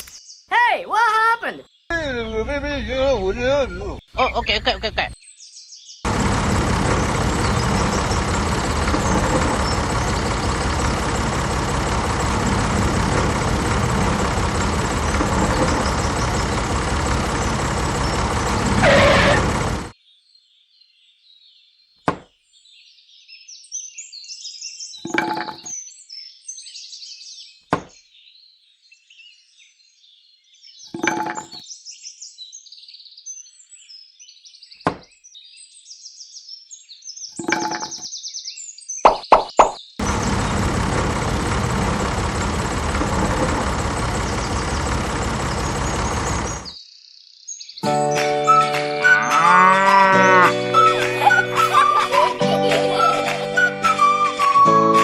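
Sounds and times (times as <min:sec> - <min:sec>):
birds chirping faintly: 0:00.0 - 0:23.6, 0:26.8 - 0:48.1
tractor engine running: 0:06.1 - 0:20.0, 0:40.0 - 0:46.7.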